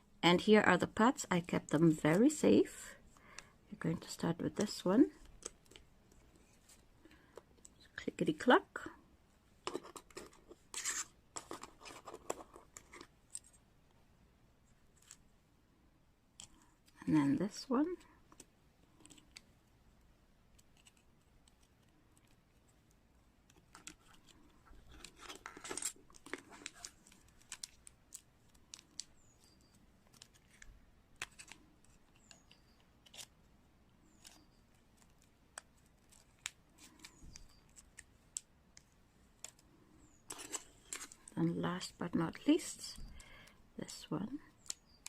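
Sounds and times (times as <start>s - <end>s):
small clicks and taps of parts: 16.4s - 17.0s.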